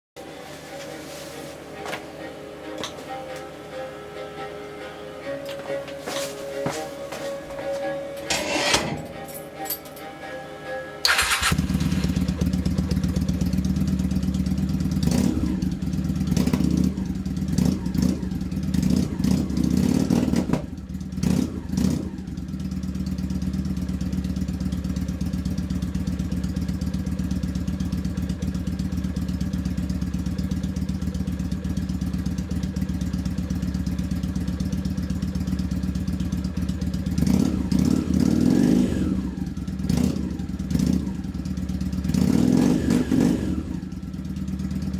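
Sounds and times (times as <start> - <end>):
motorcycle engine revving and idling: 11.1 - 44.9.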